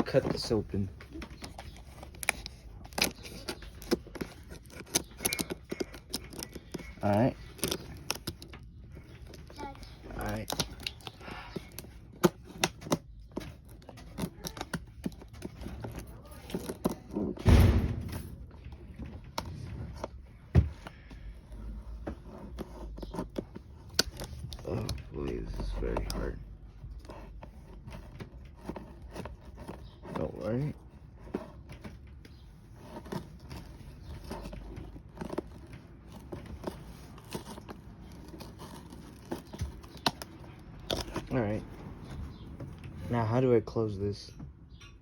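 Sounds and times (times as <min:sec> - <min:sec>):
box cutter cutting cardboard: 0:01.4 - 0:17.8, 0:27.0 - 0:41.4
heavy thump: 0:17.4 - 0:18.4.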